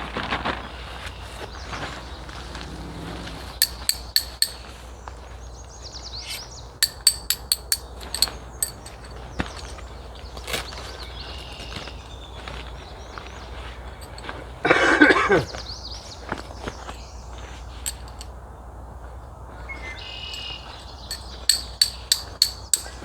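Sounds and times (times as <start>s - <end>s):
sharp clinking taps: 3.6s - 4.8s, 6.2s - 9.9s, 14.0s - 15.3s, 17.8s - 18.3s, 20.3s - 23.0s
faint bird chirps: 19.6s - 21.5s.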